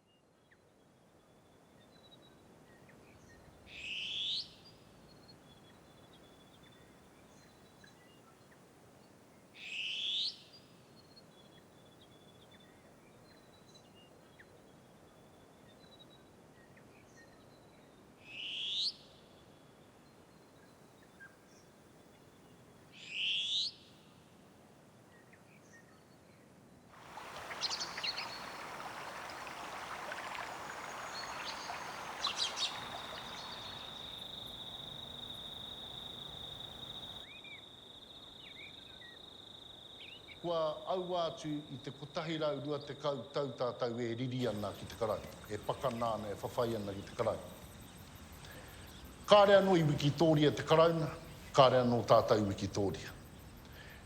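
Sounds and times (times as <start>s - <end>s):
distant birdsong: 0.0s - 54.0s
insects chirping: 26.9s - 54.0s
sharp rising bird call: 27.0s - 37.1s
chorus of birds: 27.0s - 43.4s, 44.4s - 54.0s.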